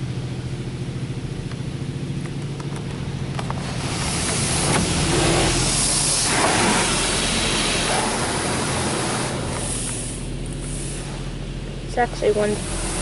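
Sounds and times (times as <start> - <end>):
car engine idling: 0.0 - 13.0
water spray hitting car: 3.6 - 11.4, 12.2 - 13.0.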